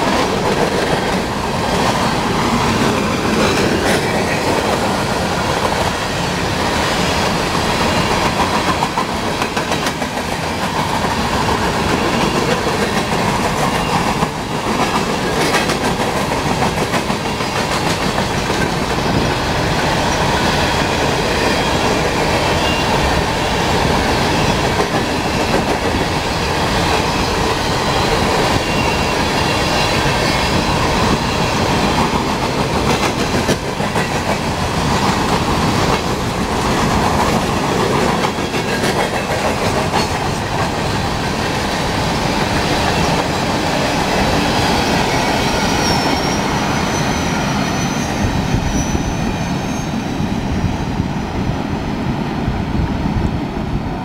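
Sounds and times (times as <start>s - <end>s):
train wheels clacking over rails: 0.0s - 51.1s
faint wheel squeal: 45.6s - 50.2s.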